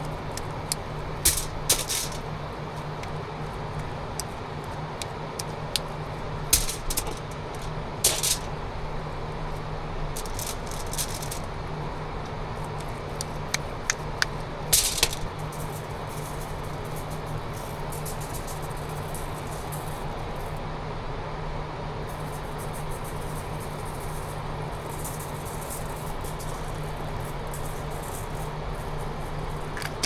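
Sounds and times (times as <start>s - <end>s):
sharp clicks and clattering: 0.0s - 9.6s, 10.2s - 20.6s, 22.2s - 30.0s
steady low hum: 0.0s - 30.0s.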